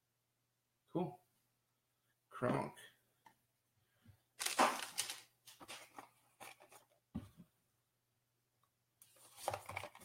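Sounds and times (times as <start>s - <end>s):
packaging rustling: 4.4s - 6.8s.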